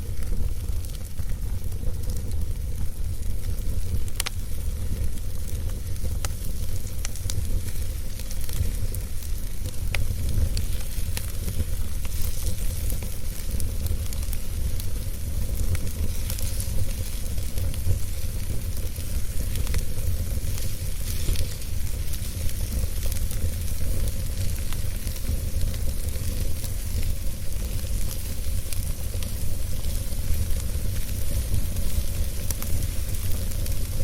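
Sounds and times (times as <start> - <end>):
faint fire crackles: 0.0 - 34.0
wood fire hissing and rumbling: 0.0 - 34.0.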